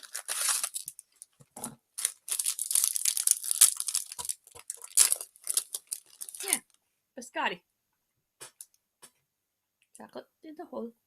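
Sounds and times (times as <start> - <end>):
snack packaging tearing and crinkling: 0.0 - 1.3, 2.0 - 6.6.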